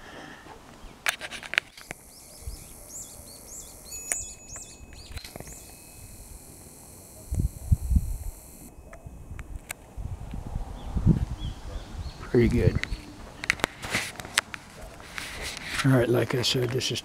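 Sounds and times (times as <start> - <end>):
faint outdoor background: 0.0 - 17.0
songbird chirping: 0.7 - 9.6, 10.7 - 13.5.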